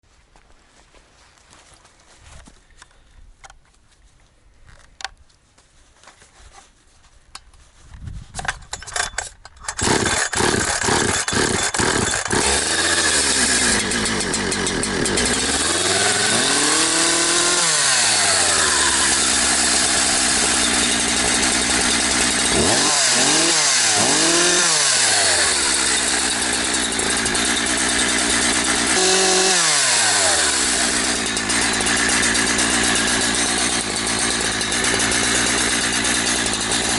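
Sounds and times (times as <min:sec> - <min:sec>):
chainsaw starting and revving: 0:09.6 - 0:36.9.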